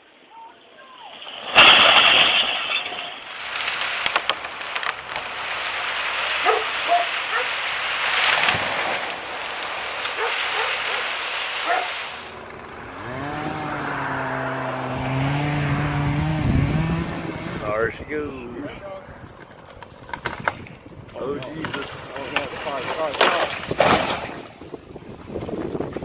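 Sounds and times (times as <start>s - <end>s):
sharp cracks and clicks: 3.2s - 11.2s, 19.3s - 24.3s
engine running: 12.2s - 18.0s.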